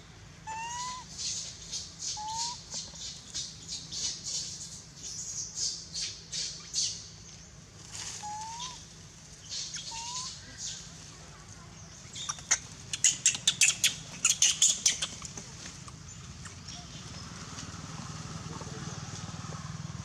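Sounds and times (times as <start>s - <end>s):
baby monkey squeaking: 0.4s - 1.4s, 2.0s - 3.2s, 8.2s - 8.8s, 9.5s - 10.4s, 12.1s - 15.3s.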